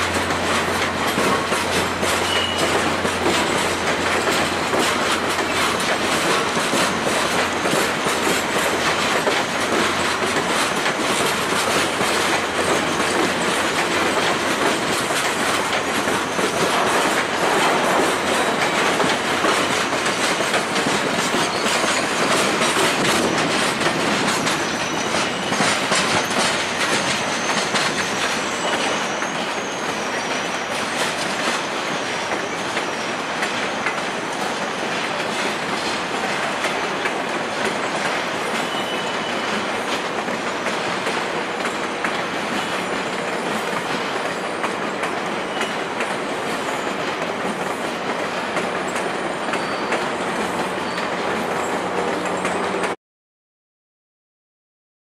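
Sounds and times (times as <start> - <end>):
train wheels clicking over rail joints: 0.0 - 53.0
faint high wheel squeals: 1.4 - 3.7, 21.4 - 22.6, 24.6 - 34.0, 38.5 - 39.7, 45.4 - 47.0, 49.4 - 51.8.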